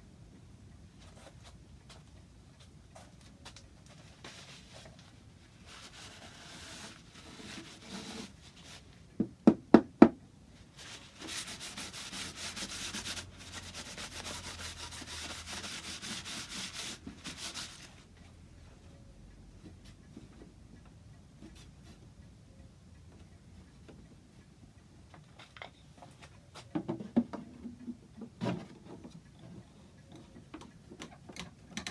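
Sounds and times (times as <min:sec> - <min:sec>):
hand sanding wood: 0:10.8 - 0:17.9.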